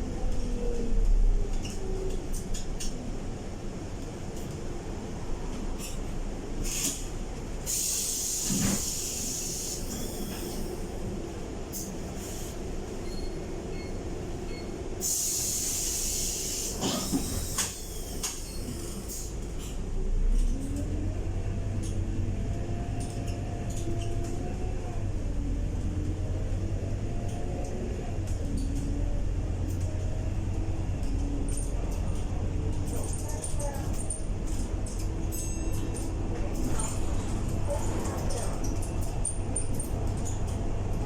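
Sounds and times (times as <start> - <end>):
bus engine pulling away: 6.3 - 41.0
compressed air hiss: 7.7 - 10.7, 15.0 - 19.3.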